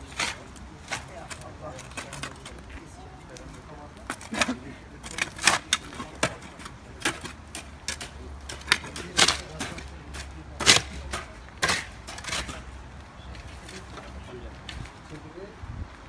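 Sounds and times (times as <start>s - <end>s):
sharp knocks and clicks: 4.0s - 12.8s.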